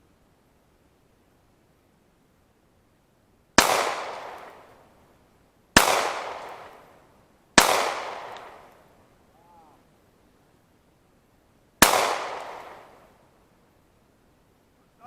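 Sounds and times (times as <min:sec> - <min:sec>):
pistol shots ringing out: 0:03.6 - 0:04.7, 0:05.8 - 0:06.8, 0:07.6 - 0:08.7, 0:11.8 - 0:13.0.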